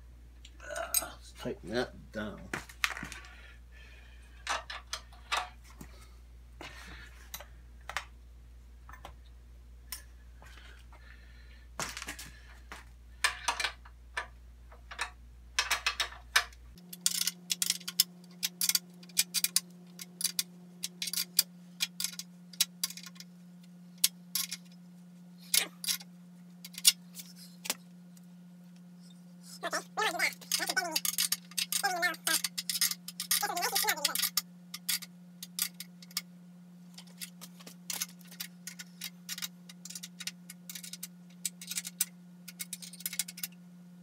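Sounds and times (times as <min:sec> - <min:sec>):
faint steady hum: 0:00.0 - 0:44.0
hand tools clicking and rattling: 0:14.9 - 0:23.3, 0:24.0 - 0:24.7, 0:25.5 - 0:27.8, 0:30.0 - 0:36.2, 0:37.0 - 0:43.6.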